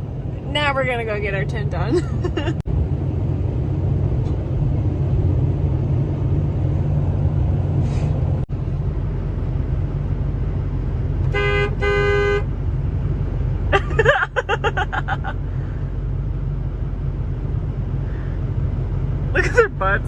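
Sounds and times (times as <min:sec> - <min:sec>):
vehicle engine rumbling: 0:00.0 - 0:20.0
vehicle horn honks: 0:11.3 - 0:12.5.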